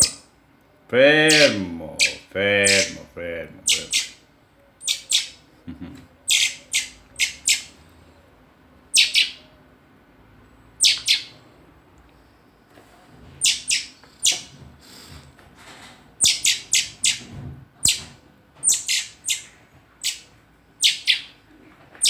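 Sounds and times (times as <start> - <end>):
young bird chirping: 0.0 - 0.3, 1.3 - 3.0, 3.6 - 4.2, 4.8 - 5.5, 6.2 - 7.8, 8.9 - 9.5, 10.8 - 11.4, 13.4 - 14.5, 16.2 - 17.2, 17.8 - 21.4.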